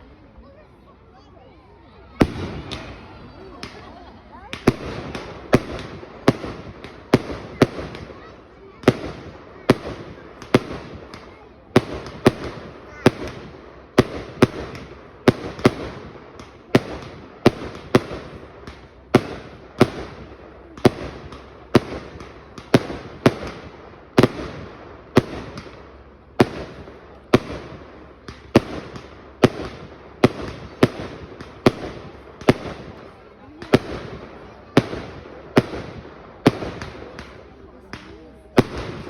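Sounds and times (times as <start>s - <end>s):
fireworks bangs: 2.1s - 39.0s.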